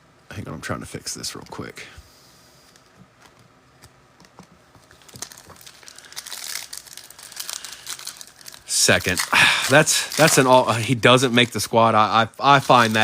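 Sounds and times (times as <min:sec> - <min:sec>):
plastic wrapper crinkling: 0:04.2 - 0:13.0.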